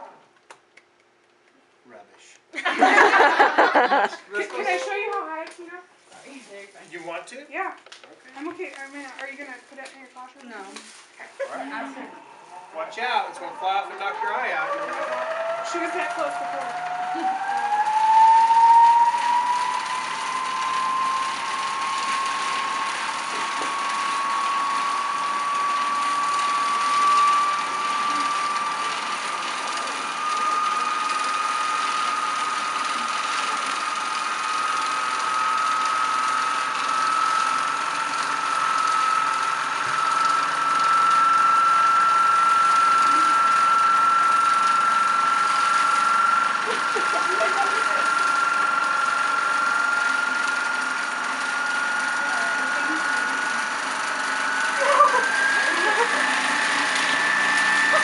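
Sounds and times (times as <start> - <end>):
electric motor whining: 8.3 - 58.0.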